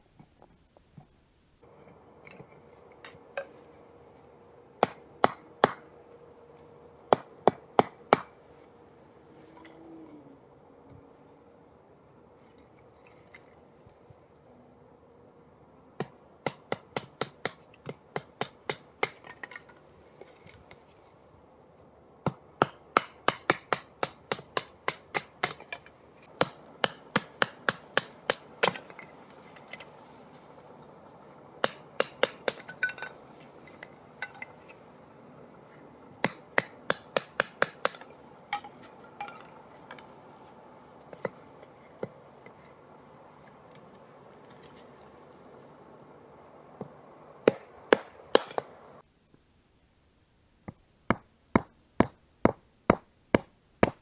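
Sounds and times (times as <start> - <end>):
hammering blows: 4.8 - 5.9, 7.1 - 8.4, 22.2 - 29.9, 31.6 - 33.1, 36.2 - 40.1, 46.8 - 48.8.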